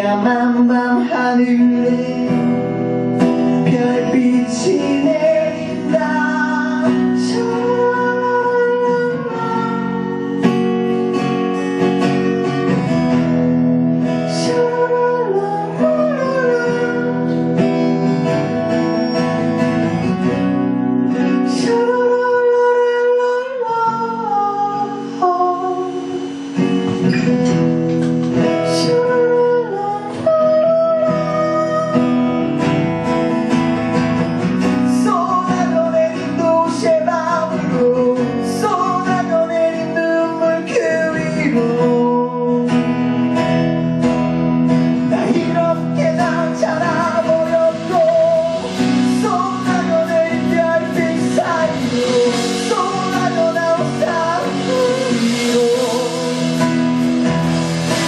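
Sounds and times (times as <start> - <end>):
strummed acoustic guitar: 0.0 - 58.0
sliding held melody notes: 44.2 - 58.0.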